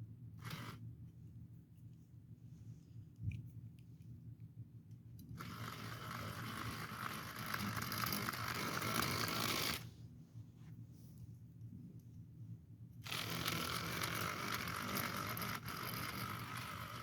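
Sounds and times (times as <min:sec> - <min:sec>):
small electric motor and gears: 0:00.4 - 0:00.8, 0:05.4 - 0:09.9, 0:13.0 - 0:17.0.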